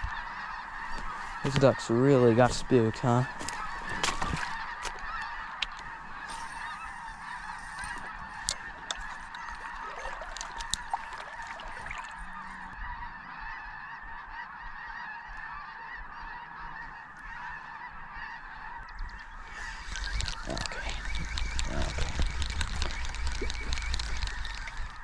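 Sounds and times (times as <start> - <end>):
flock of waterfowl honking: 0.0 - 25.0
faint sharp clicks: 18.9 - 25.0.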